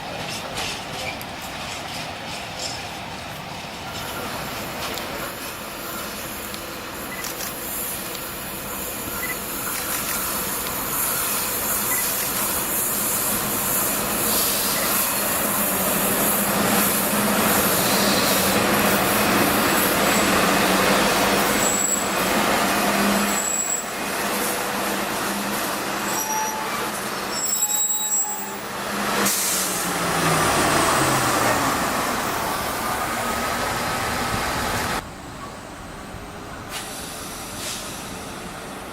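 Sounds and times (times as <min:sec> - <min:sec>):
train wheels rumbling: 0:00.0 - 0:38.9
high-pitched wheel squeals: 0:21.6 - 0:22.2, 0:23.2 - 0:24.0, 0:26.0 - 0:28.7.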